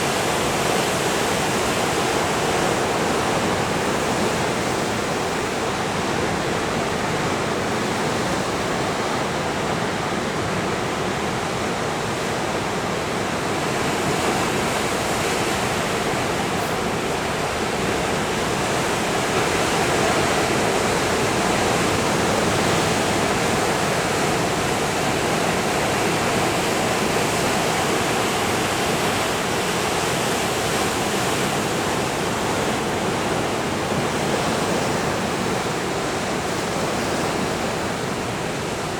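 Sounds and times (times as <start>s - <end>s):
ocean surf breaking: 12.1s - 38.9s.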